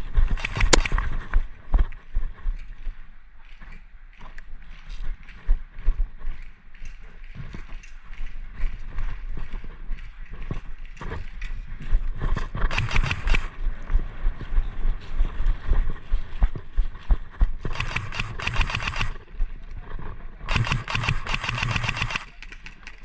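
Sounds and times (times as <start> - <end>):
single airsoft shots and clicks: 0.3 - 1.1, 12.6 - 13.5, 17.7 - 19.2, 20.5 - 23.0
airsoft guns firing full-auto: 0.4 - 0.9, 12.7 - 13.5, 17.7 - 19.2, 20.5 - 22.5.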